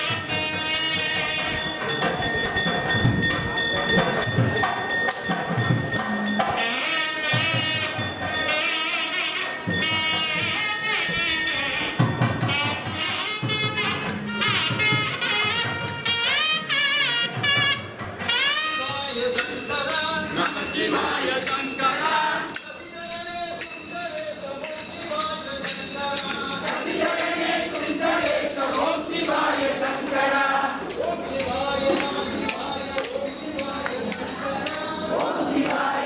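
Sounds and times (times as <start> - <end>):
jingling percussion: 0.0 - 36.0
wind instrument melody: 0.0 - 36.0
drum strokes: 9.7 - 36.0.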